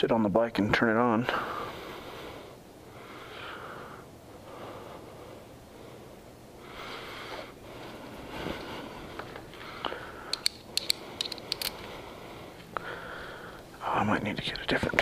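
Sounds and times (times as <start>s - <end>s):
person breathing: 1.3s - 13.8s.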